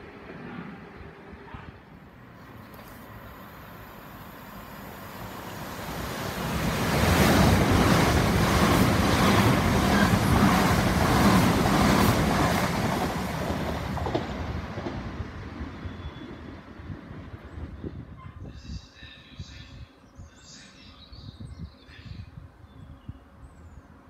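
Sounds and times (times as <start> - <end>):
train rushing past: 0.0 - 17.8.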